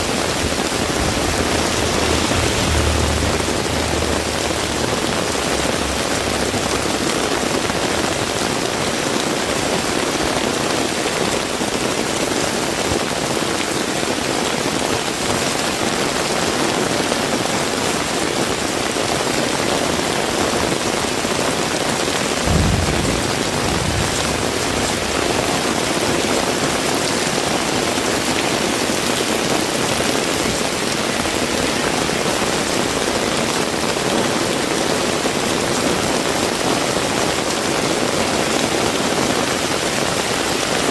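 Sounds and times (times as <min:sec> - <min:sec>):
heavy rain hissing: 0:00.0 - 0:10.4, 0:22.4 - 0:31.8
low thump: 0:00.7 - 0:07.8, 0:22.5 - 0:26.2.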